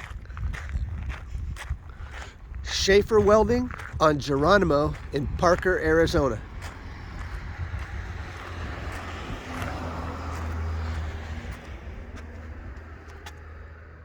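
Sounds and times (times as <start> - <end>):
road vehicle passing by: 4.5 - 14.0.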